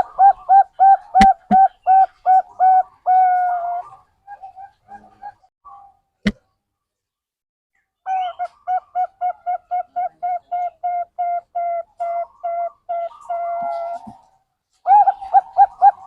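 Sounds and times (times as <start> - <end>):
dove cooing: 0.0 - 5.5, 8.1 - 14.2, 14.8 - 16.0.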